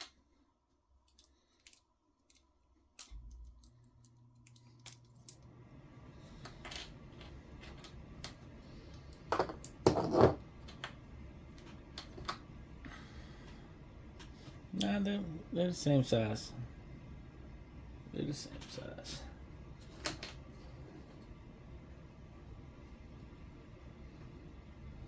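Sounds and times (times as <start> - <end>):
low steady hum: 0.0 - 25.0
light clicks and taps of parts: 1.0 - 5.5.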